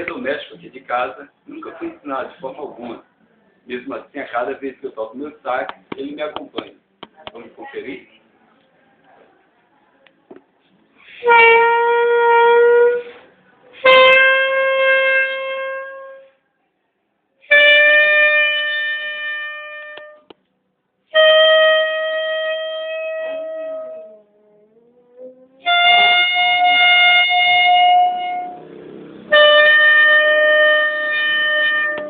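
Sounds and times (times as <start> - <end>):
saxophone long held notes: 11.2 - 16.3, 21.1 - 32.0
dog howling: 24.0 - 25.7.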